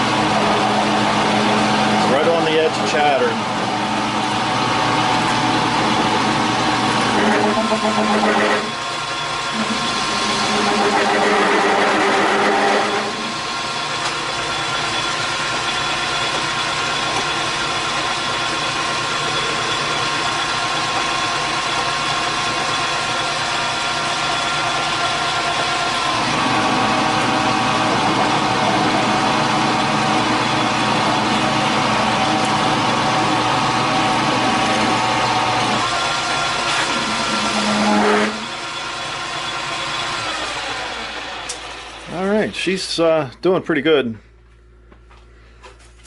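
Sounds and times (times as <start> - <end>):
metal shaper cutting: 6.9 - 8.8, 9.5 - 13.8, 23.0 - 42.0.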